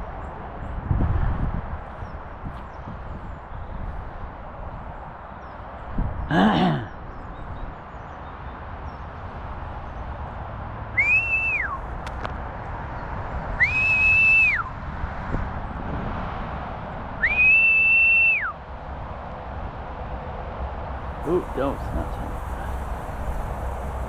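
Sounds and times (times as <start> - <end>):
whistle blasts: 11.0 - 11.8, 13.6 - 14.7, 17.2 - 18.5
low outdoor rumble: 20.8 - 24.0.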